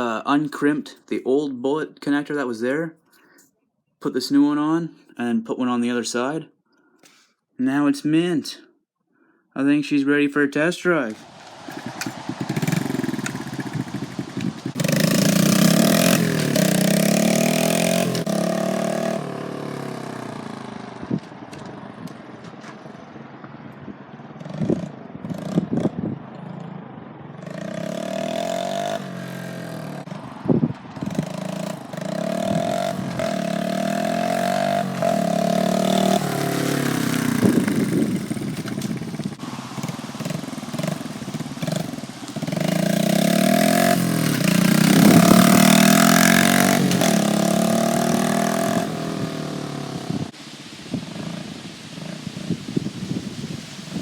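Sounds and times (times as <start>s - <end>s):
mini bike engine running: 11.6s - 22.1s, 27.5s - 50.3s.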